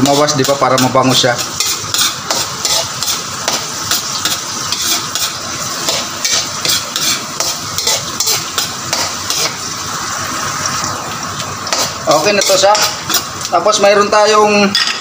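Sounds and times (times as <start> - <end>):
metal ladle scraping wok: 0.0 - 9.7
onion sizzling in hot oil: 0.0 - 14.9.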